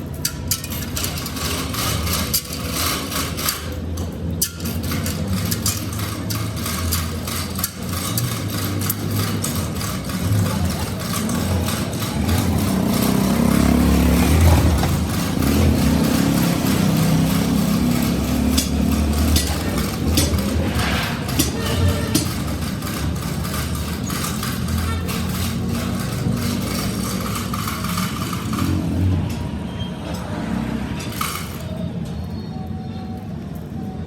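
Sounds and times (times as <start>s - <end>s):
machinery humming: 4.6s - 29.4s.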